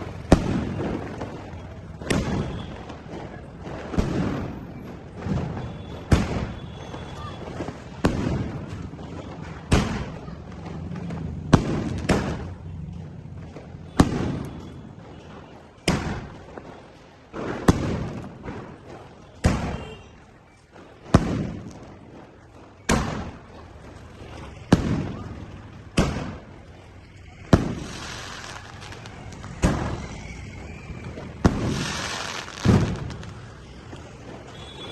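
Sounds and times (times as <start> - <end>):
firework bangs with echo: 0.0 - 34.9
firework hissing bursts: 27.5 - 33.4.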